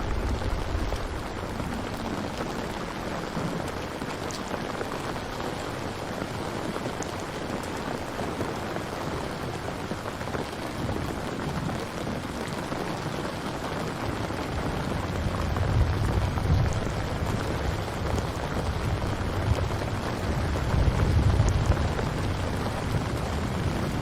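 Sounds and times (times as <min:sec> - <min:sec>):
low rumble: 0:00.0 - 0:03.1
steady rain falling: 0:00.0 - 0:24.0.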